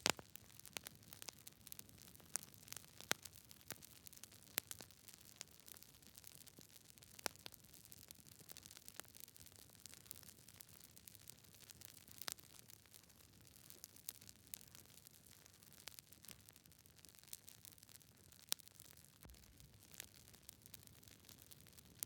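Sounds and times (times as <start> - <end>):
faint steady hiss: 0.0 - 2.2
campfire crackling: 0.0 - 22.0.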